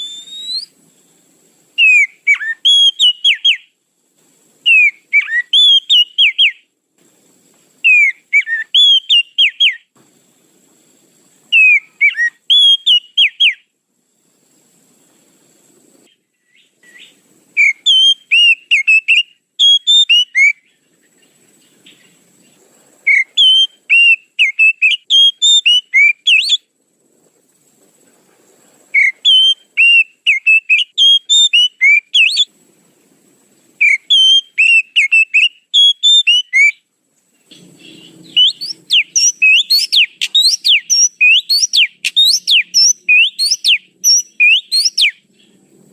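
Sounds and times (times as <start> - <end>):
bird whistled song: 0.0 - 0.8, 1.8 - 3.8, 4.6 - 6.7, 7.8 - 9.9, 11.5 - 13.7, 16.1 - 22.2, 23.0 - 26.7, 28.9 - 32.5, 33.8 - 45.6.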